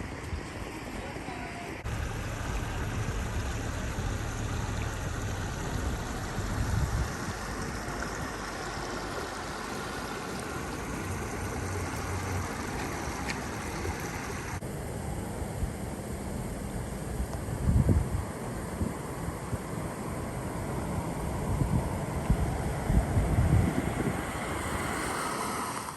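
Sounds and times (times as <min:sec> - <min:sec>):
floodwater rushing over street: 0:00.0 - 0:14.6, 0:15.3 - 0:25.9
low rumble: 0:01.8 - 0:18.4.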